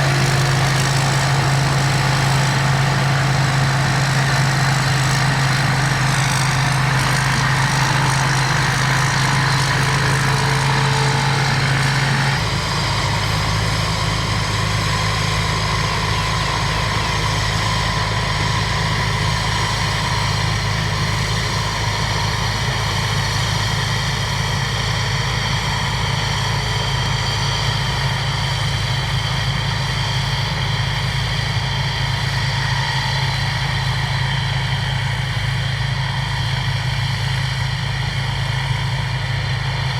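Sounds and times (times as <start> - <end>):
combine harvester engine humming: 0.0 - 39.9.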